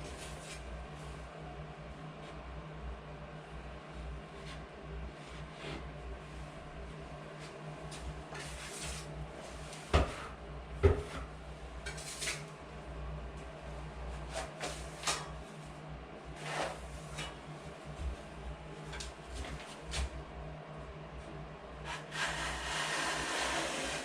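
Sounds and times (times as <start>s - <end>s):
steady low hum: 0.0s - 24.0s
tool scraping drywall: 21.8s - 24.0s.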